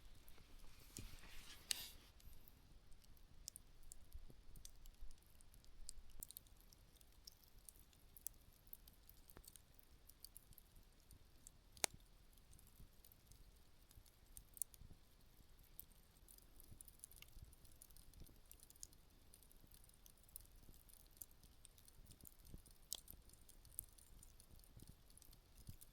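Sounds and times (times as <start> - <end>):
campfire crackling and popping: 0.0 - 25.9.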